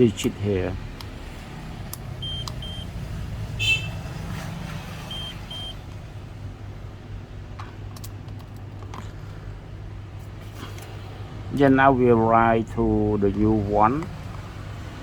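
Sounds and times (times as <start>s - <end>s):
electronic double beeps: 2.2s - 2.9s.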